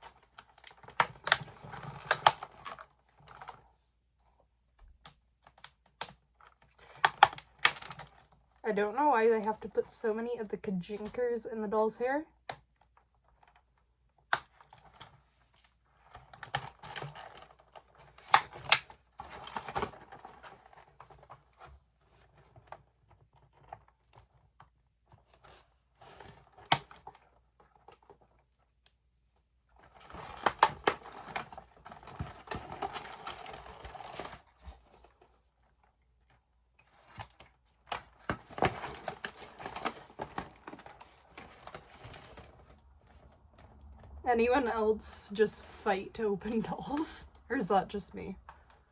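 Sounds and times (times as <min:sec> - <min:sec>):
packaging clicks and snaps: 0:00.0 - 0:03.6, 0:16.2 - 0:20.6, 0:26.2 - 0:27.2, 0:30.0 - 0:34.4, 0:37.0 - 0:42.7
plastic and cardboard crinkling: 0:00.0 - 0:09.8, 0:12.6 - 0:44.3.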